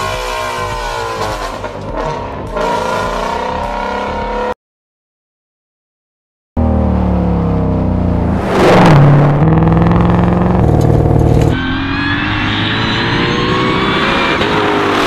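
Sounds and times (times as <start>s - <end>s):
car engine at full throttle: 0.0s - 4.5s, 6.6s - 15.0s
loud rush: 8.2s - 10.6s.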